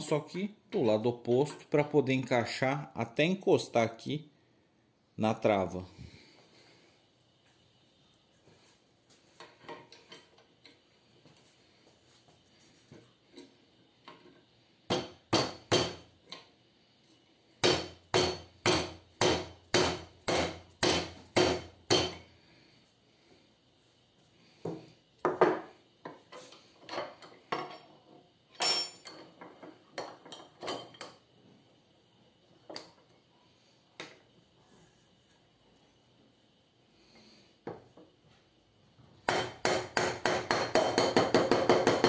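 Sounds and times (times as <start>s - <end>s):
hammer tapping on metal: 17.6s - 22.2s, 39.3s - 42.0s.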